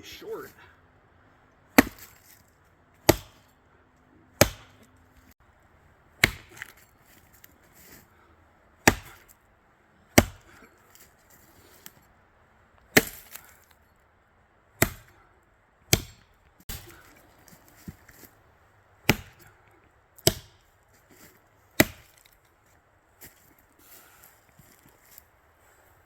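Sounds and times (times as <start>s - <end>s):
axe chopping wood: 1.7s - 2.4s, 3.0s - 3.5s, 4.3s - 4.9s, 6.2s - 6.9s, 8.8s - 9.4s, 10.1s - 10.7s, 12.9s - 13.6s, 14.8s - 15.2s, 15.9s - 18.0s, 19.0s - 19.6s, 20.2s - 20.7s, 21.8s - 22.4s.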